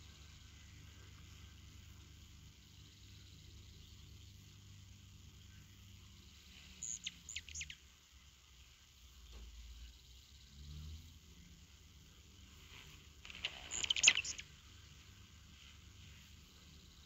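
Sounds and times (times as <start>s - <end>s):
bird chirping: 0.0s - 8.3s, 13.3s - 15.3s
faint background hiss: 0.0s - 17.0s.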